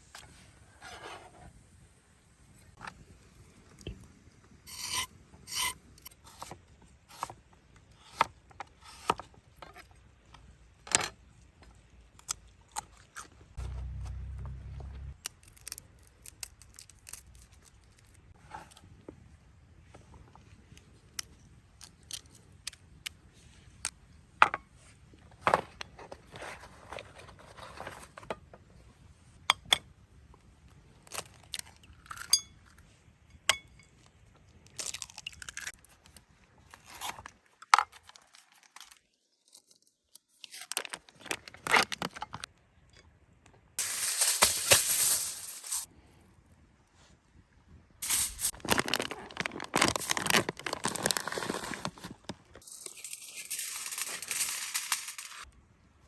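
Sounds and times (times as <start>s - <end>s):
crinkling and rustling: 24.8s - 29.0s, 34.3s - 42.5s, 43.8s - 45.9s, 48.0s - 55.5s
clicks and clinks of objects: 43.8s - 45.9s, 52.6s - 55.5s.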